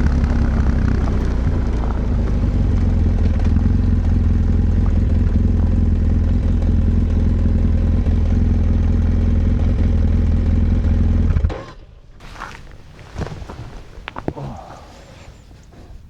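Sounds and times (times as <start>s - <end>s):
motorcycle engine idling: 0.0s - 11.3s.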